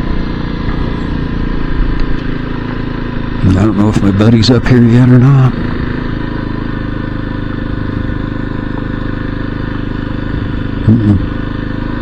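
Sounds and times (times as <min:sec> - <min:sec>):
engine running at low speed: 0:00.0 - 0:12.0
short vocal hum: 0:10.3 - 0:11.6.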